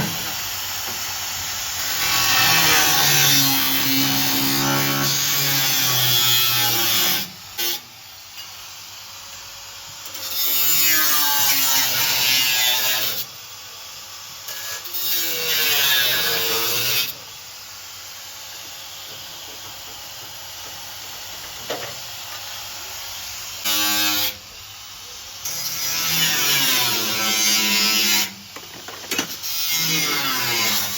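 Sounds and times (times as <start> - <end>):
power tool sanding: 0.0 - 7.8.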